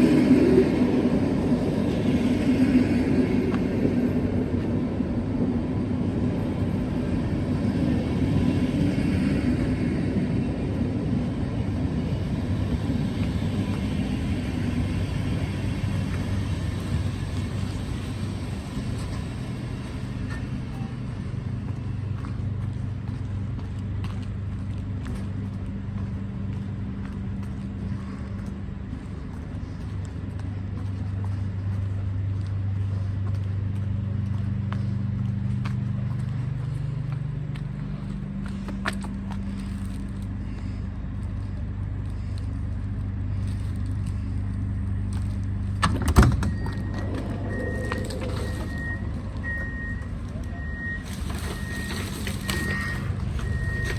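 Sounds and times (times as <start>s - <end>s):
train electrical hum: 0.0s - 53.9s.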